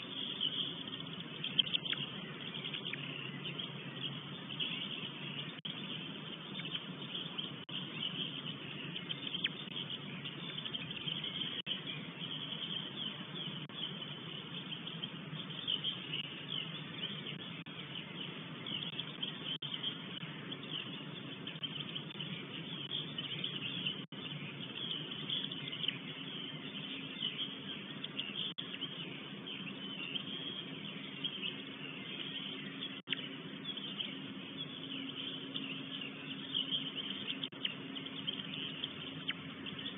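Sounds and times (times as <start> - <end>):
low steady hum: 0.0 - 39.9
songbirds chirping and singing: 0.0 - 39.9.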